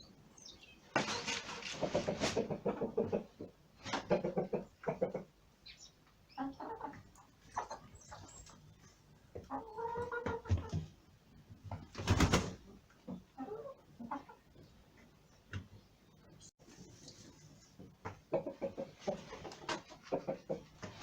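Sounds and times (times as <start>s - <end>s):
hens clucking: 0.9s - 5.4s, 6.0s - 10.9s, 12.3s - 15.2s, 18.0s - 21.0s.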